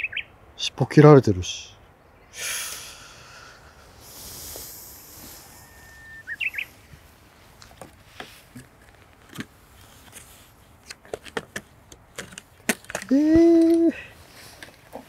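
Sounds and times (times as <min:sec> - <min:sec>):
bird whistle and warble: 0:00.0 - 0:00.3, 0:04.9 - 0:06.8.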